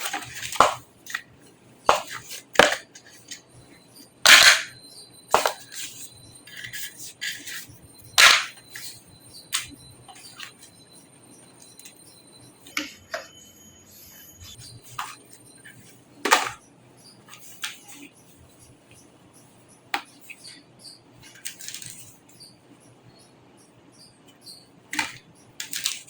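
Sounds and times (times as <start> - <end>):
computer parts clicking and knocking: 1.9 - 3.5, 4.2 - 10.7, 14.6 - 16.6, 24.4 - 26.0.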